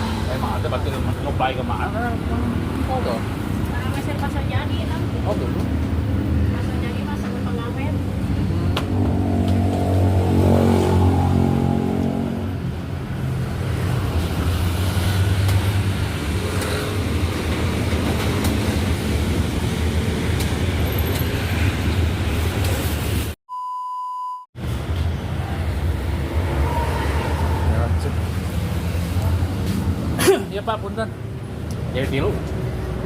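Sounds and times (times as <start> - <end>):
vehicle engine hum: 0.0 - 23.3
road traffic: 0.0 - 23.4, 24.6 - 33.0
electronic beep tone: 23.5 - 24.4.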